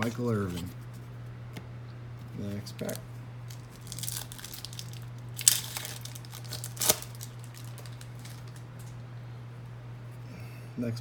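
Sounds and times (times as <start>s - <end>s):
steady low hum: 0.0s - 11.0s
wrapper crinkling: 2.8s - 9.0s
wrapper ripping: 2.9s - 9.0s.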